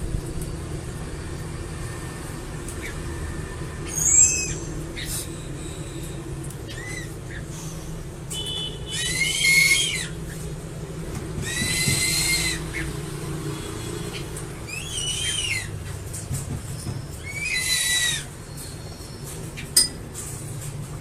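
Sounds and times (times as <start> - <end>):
eagle whistled calls: 3.8 - 5.9, 8.8 - 10.2, 11.4 - 12.9, 14.7 - 15.7, 17.1 - 19.7.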